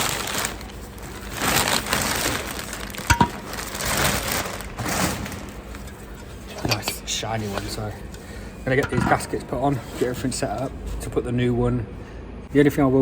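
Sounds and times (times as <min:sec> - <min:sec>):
packaging crinkling: 0:00.0 - 0:06.1.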